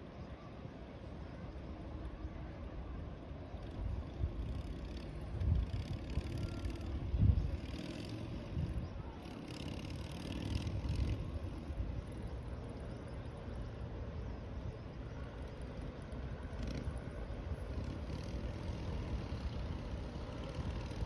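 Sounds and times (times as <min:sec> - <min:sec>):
distant city traffic hum: 0:00.0 - 0:21.0
wind buffeting microphone: 0:03.6 - 0:12.3, 0:16.4 - 0:21.0.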